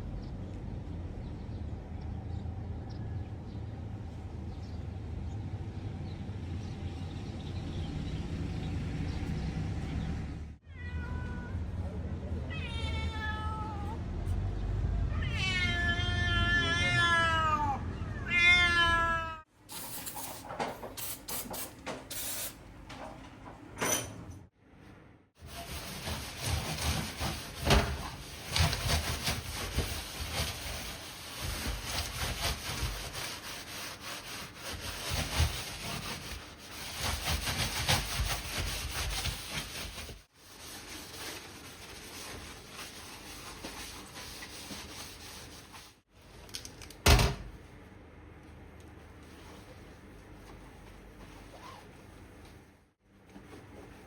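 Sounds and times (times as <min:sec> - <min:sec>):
low outdoor rumble: 0:00.0 - 0:16.5
cat meowing: 0:10.6 - 0:11.8, 0:12.4 - 0:14.0, 0:15.0 - 0:19.5
grill scrubbing and scraping: 0:25.4 - 0:46.0.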